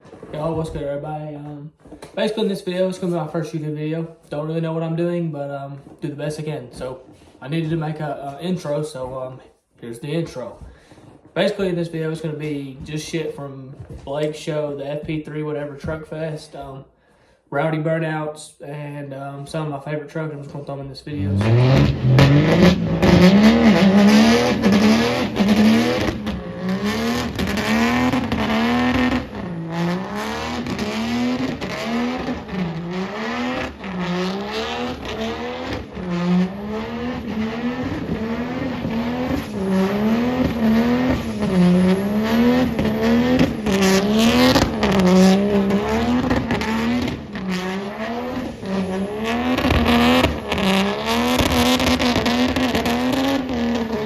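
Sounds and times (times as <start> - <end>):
truck engine revving: 21.1 - 54.0.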